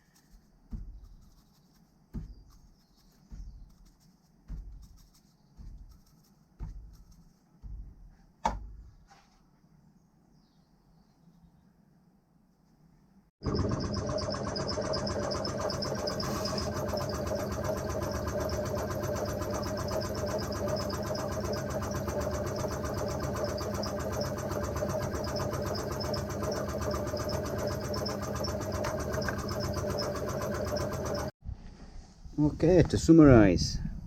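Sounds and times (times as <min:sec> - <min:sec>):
motor running with whine: 0:13.4 - 0:31.3.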